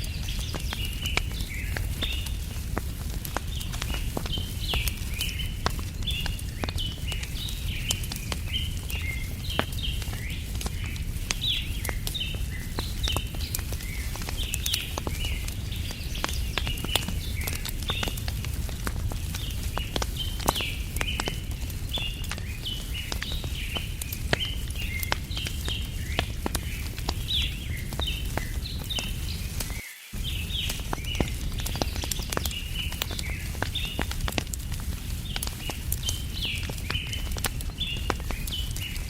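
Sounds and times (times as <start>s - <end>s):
small birds chirping: 0.0s - 39.0s
wood fire crackling and popping: 0.0s - 39.0s
low rumble: 30.2s - 31.9s.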